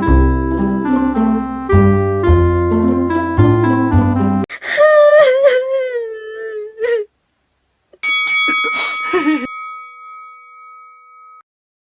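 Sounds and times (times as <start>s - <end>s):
bell-like ringing tone: 8.0s - 11.4s.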